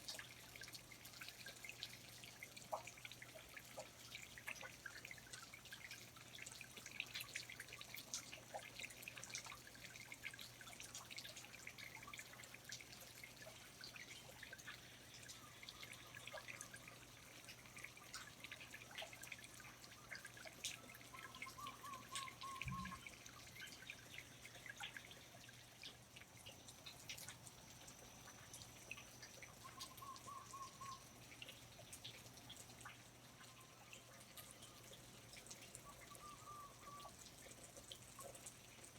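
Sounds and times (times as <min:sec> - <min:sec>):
water drips: 0:00.0 - 0:38.9
bird chirps: 0:21.2 - 0:23.2.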